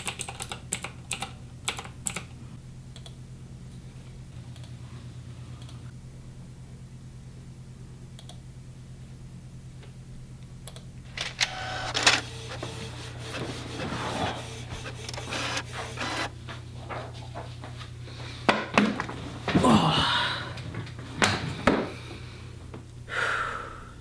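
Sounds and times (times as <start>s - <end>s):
steady low hum: 2.3s - 18.5s
office machine rasping and clicking: 11.1s - 16.4s.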